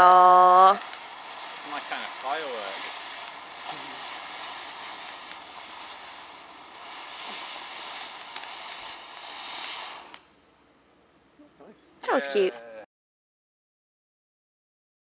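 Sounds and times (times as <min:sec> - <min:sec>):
faint crackles: 0:00.0 - 0:10.6
firework fountain hissing: 0:00.0 - 0:10.7, 0:12.1 - 0:12.5.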